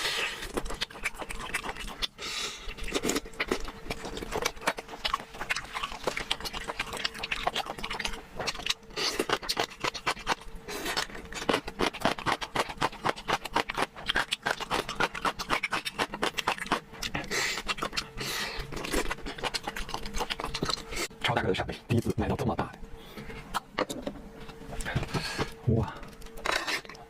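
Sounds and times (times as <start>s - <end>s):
wet chewing and lip smacks: 0.4s - 18.1s.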